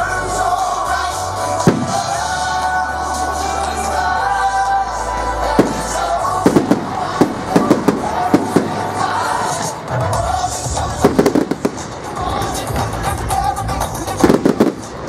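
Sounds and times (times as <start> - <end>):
music: 0.0 - 15.0
fireworks bangs: 1.6 - 2.4, 5.5 - 13.0, 14.2 - 15.0.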